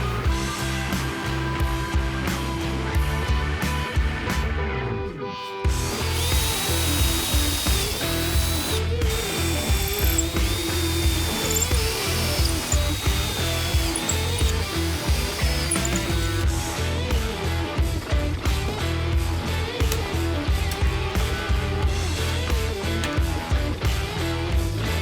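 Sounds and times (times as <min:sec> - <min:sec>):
power drill whining: 0:05.7 - 0:16.6.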